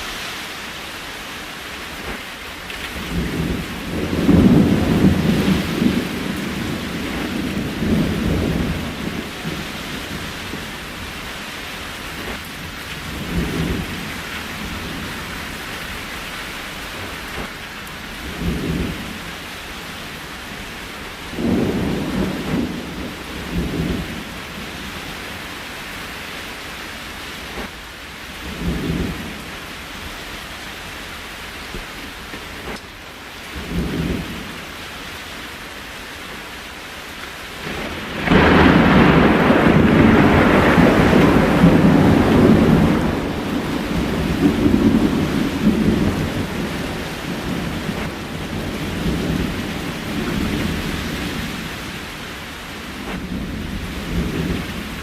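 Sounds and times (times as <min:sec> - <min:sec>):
steady rain: 0:00.0 - 0:55.0
thunder rumbling: 0:01.1 - 0:25.6, 0:27.4 - 0:29.9, 0:33.5 - 0:34.7, 0:37.6 - 0:55.0.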